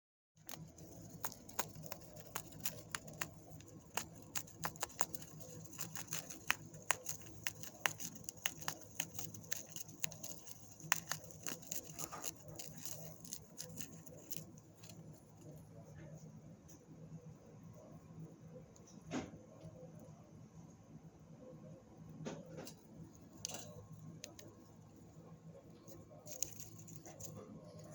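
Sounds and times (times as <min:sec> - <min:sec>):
bird preening clicks: 0:00.4 - 0:15.0.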